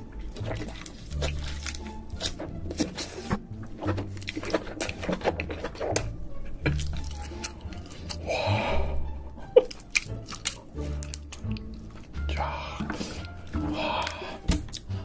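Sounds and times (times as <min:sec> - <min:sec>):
wet mouth sounds: 0:00.0 - 0:15.0
crab shell cracking: 0:00.2 - 0:08.3, 0:09.5 - 0:12.2
breathy noise: 0:07.3 - 0:09.4, 0:12.3 - 0:15.0.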